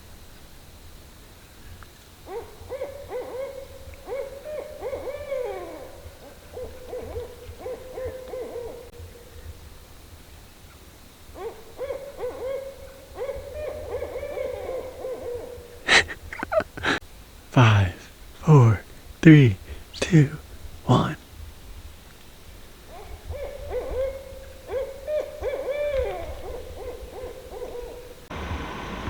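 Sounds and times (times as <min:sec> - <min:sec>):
owls hooting: 0:02.3 - 0:09.4, 0:11.4 - 0:17.0, 0:22.9 - 0:28.2.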